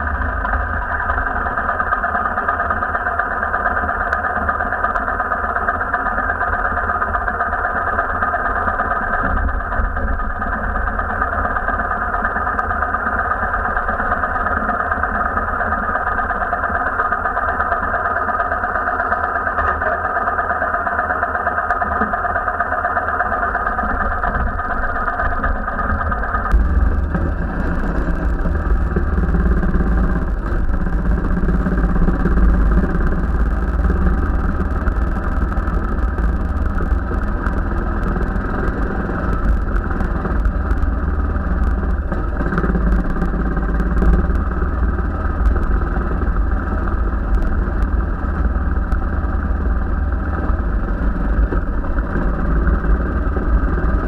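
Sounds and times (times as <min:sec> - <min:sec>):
motorcycle engine running: 0:00.0 - 0:54.0
knocks and clatter: 0:23.8 - 0:50.5.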